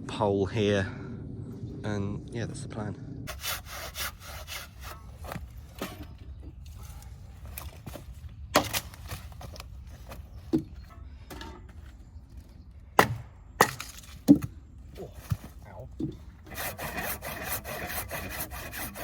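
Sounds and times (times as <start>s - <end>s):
low background rumble: 0.0s - 19.0s
wood knocking and snapping: 7.4s - 10.8s, 13.0s - 14.6s.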